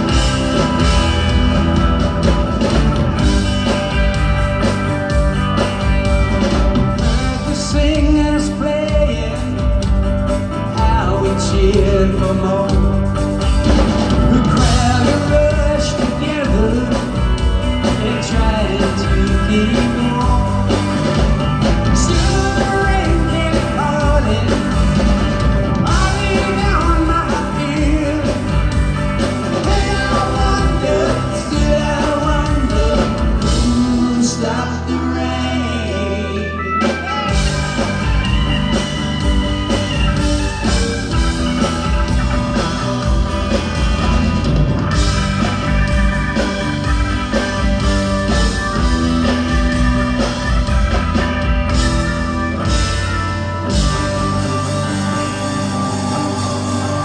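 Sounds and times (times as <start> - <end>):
bass: 0.0 - 57.0
drums: 0.0 - 57.0
electric guitar: 0.0 - 57.0
lead vocal: 7.0 - 10.0, 10.6 - 13.4, 14.1 - 37.9, 54.1 - 57.0.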